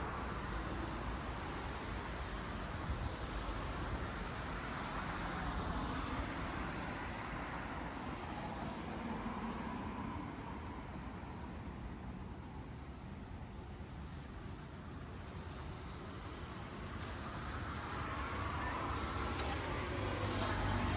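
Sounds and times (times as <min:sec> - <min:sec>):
cars passing on busy road: 0:00.0 - 0:20.9.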